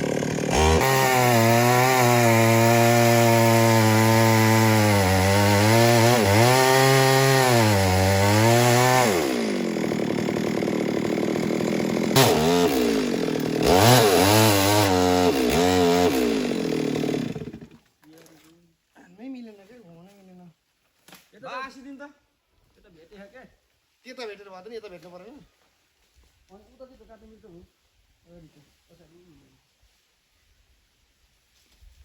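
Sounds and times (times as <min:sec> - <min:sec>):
chainsaw cutting wood: 0:00.0 - 0:18.0.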